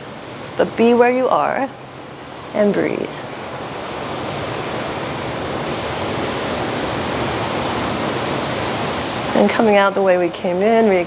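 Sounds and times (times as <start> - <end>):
breaking ocean waves: 2.2 - 11.0.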